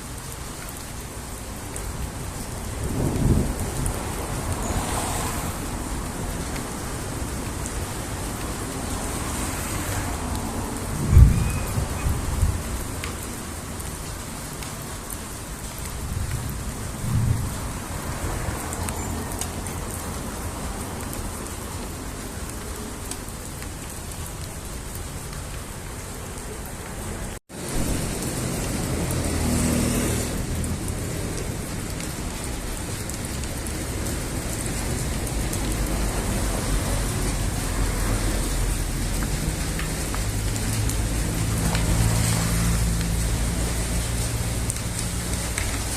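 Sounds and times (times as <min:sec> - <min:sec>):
steady rain: 0:00.0 - 0:45.9
low thunder: 0:02.7 - 0:05.1, 0:10.8 - 0:12.7, 0:16.0 - 0:17.8, 0:27.6 - 0:31.7.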